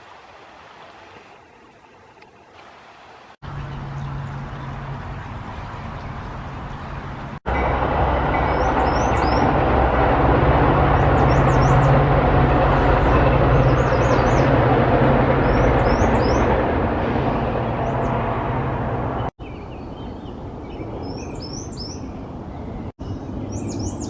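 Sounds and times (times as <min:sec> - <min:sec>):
vehicle rumble: 0:03.4 - 0:19.4.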